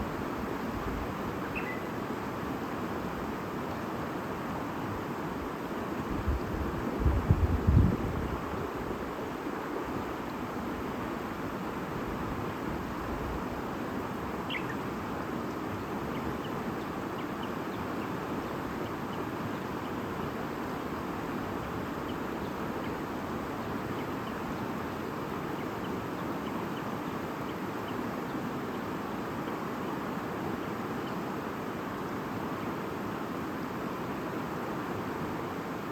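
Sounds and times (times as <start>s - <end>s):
faint bird chirps: 1.4s - 2.0s, 14.4s - 20.1s.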